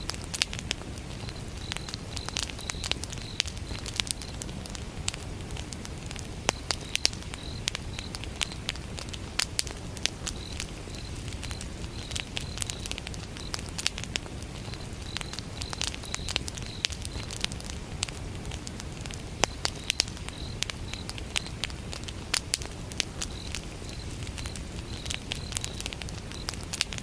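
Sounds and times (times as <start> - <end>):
crickets chirping: 0.0 - 27.0
wood fire crackling and popping: 0.0 - 27.0.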